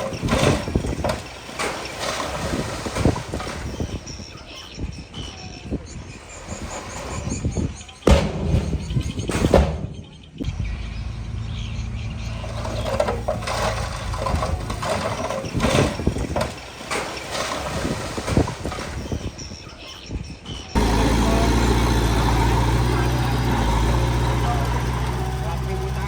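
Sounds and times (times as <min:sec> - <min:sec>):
loud knocks and clanks: 0:00.0 - 0:03.8, 0:06.7 - 0:10.4, 0:12.4 - 0:19.3
diesel engine running: 0:00.0 - 0:03.9, 0:08.1 - 0:19.4, 0:20.7 - 0:26.0.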